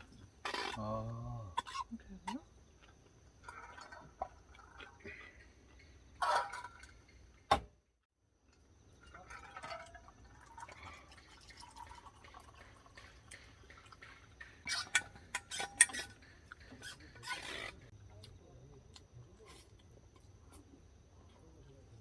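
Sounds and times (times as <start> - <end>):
water dripping and trickling: 1.6 - 5.9, 8.5 - 17.4.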